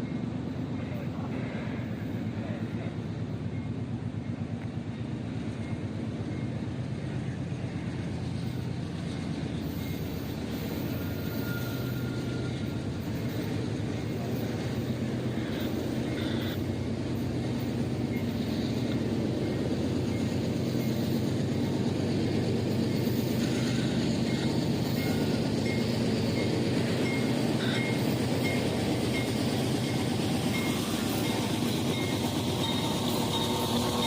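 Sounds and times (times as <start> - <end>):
train rumbling and rattling: 0.0 - 34.0.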